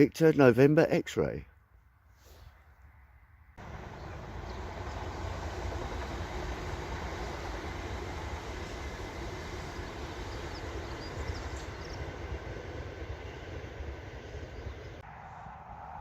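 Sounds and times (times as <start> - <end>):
train rumbling past: 3.6 - 16.0.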